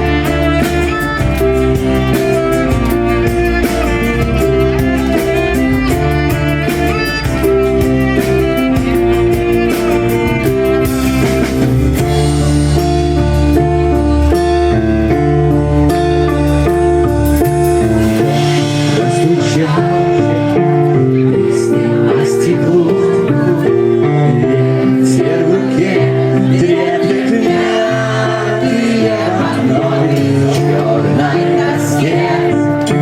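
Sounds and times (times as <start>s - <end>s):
rock band playing live: 0.0s - 33.0s.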